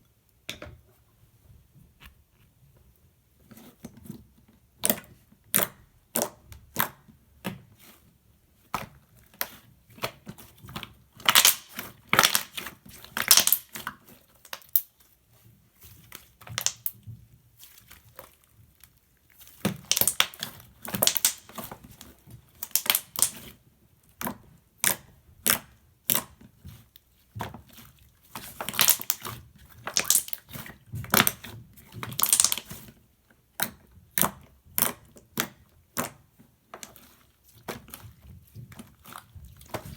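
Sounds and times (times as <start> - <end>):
slime crackling and popping: 11.2 - 14.9, 16.4 - 17.0, 19.8 - 21.6, 22.5 - 23.5, 28.4 - 31.4, 32.0 - 32.8.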